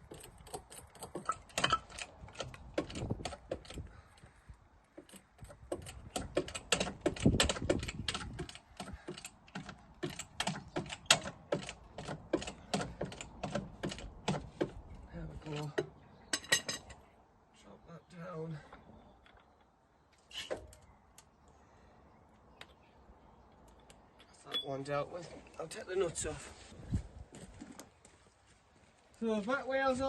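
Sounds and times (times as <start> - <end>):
jack clicking and knocking: 0.0 - 4.3, 4.9 - 14.9.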